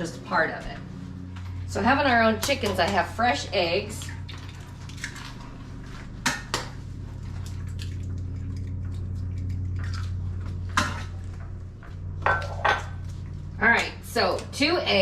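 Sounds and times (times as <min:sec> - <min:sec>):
steady low hum: 0:00.0 - 0:15.0
dishes and utensils clinking: 0:12.3 - 0:12.9.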